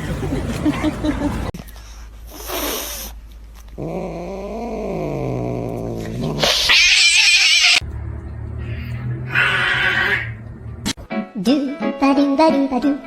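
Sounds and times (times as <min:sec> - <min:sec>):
animal yowling: 0:04.2 - 0:07.8, 0:08.6 - 0:10.5.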